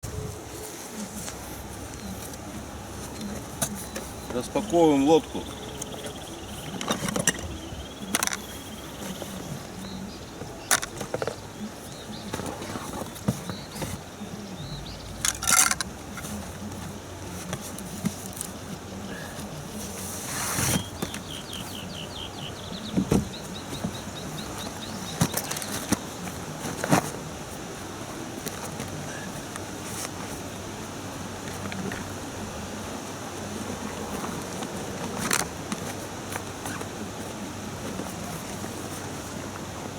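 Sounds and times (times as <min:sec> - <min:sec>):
knocks and clicks of handling: 0:05.4 - 0:09.8, 0:10.4 - 0:14.0.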